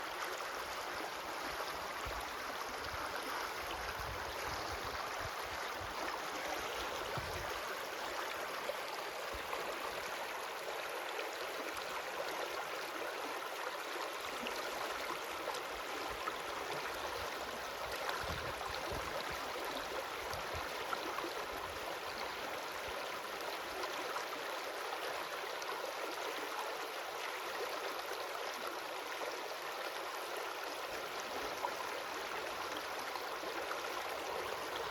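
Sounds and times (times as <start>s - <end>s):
stream flowing: 0.0s - 34.9s.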